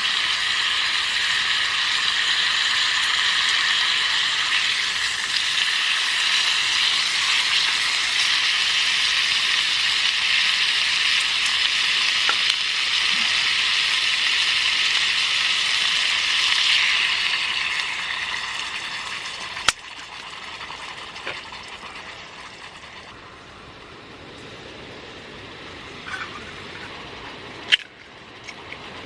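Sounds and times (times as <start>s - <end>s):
food sizzling in a pan: 0.0s - 21.9s.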